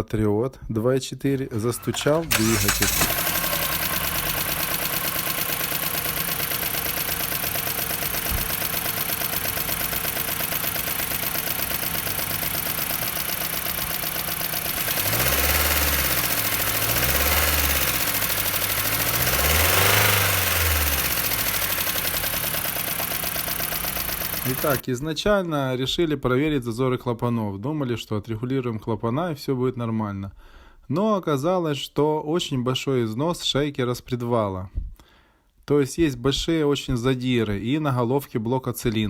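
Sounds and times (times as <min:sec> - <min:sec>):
car engine revving: 0:01.4 - 0:24.8
car engine tapping knock: 0:08.1 - 0:08.9.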